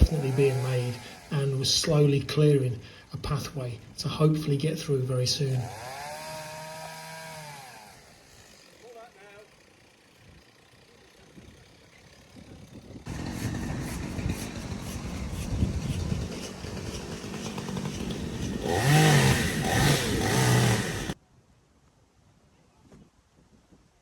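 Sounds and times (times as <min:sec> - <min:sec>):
chainsaw cutting timber: 0:00.0 - 0:01.9, 0:05.5 - 0:09.8, 0:13.1 - 0:21.2.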